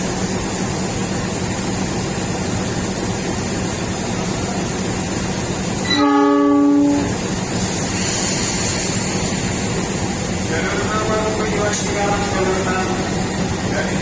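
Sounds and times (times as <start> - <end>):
train rumble: 0.0 - 14.0
train horn blast: 5.8 - 7.2.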